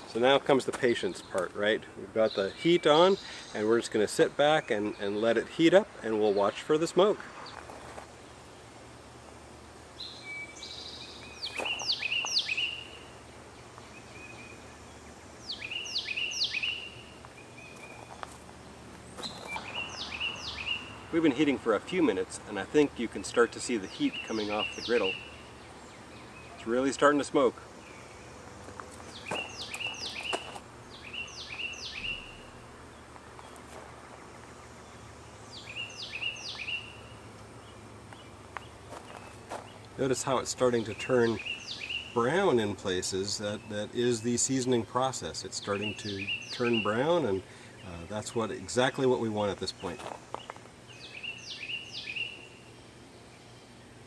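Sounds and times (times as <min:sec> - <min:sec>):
low background noise: 0:00.0 - 0:54.0
songbird whistling: 0:10.0 - 0:13.0, 0:15.4 - 0:18.1, 0:29.1 - 0:32.5, 0:35.5 - 0:37.1.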